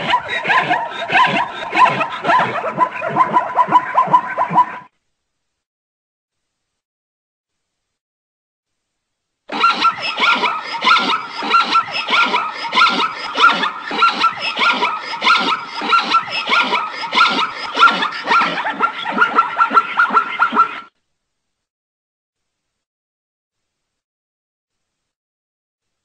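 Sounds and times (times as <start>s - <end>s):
zebra yelping barks: 0.0s - 4.8s, 9.5s - 20.8s.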